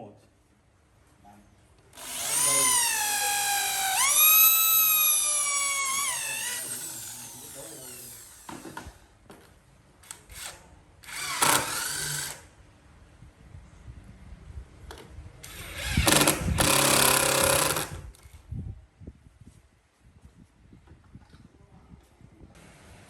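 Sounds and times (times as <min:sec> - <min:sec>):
power tool working wood: 0:02.0 - 0:08.9, 0:11.1 - 0:12.4, 0:15.5 - 0:18.0.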